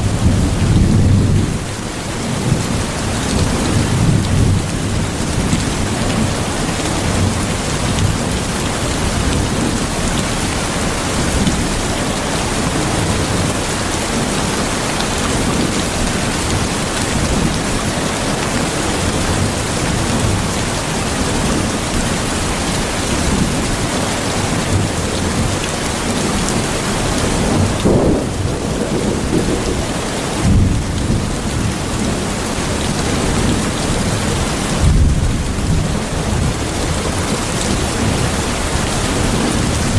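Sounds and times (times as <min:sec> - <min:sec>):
low rumble of thunder: 0:00.0 - 0:01.7, 0:27.4 - 0:32.2, 0:33.2 - 0:39.9
heavy rain hissing: 0:00.0 - 0:39.9.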